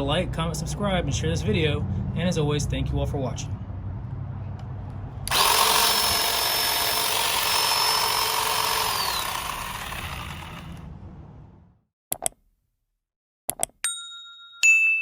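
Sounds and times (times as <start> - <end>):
electric chainsaw whining: 5.3 - 10.8.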